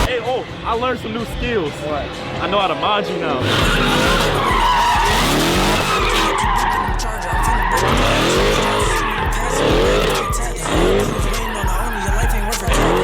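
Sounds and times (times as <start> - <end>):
car engines revving: 0.0 - 13.0
tyre squeal and skidding: 3.4 - 13.0.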